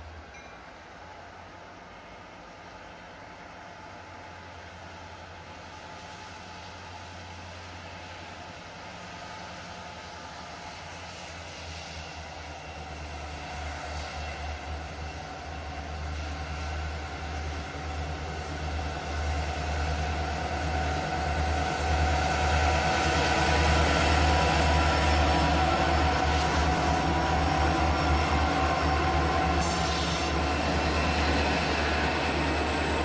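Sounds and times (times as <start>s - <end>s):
locomotive engine drone: 0.0s - 33.0s
steel wheels on rail: 0.0s - 33.0s.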